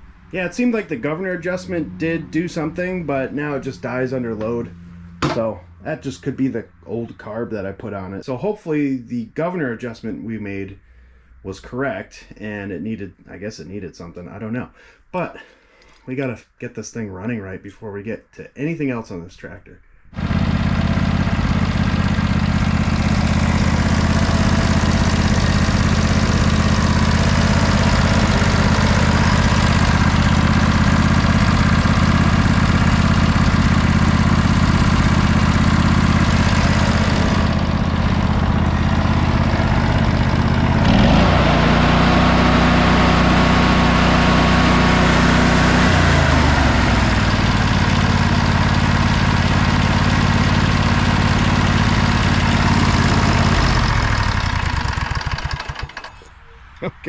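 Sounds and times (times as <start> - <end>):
lawn tractor engine revving: 0.0 - 6.3, 20.2 - 56.4.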